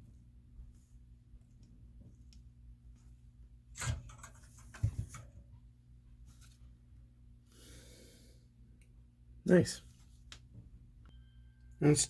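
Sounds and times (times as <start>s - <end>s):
knocks and scrapes of small parts: 3.7s - 5.6s.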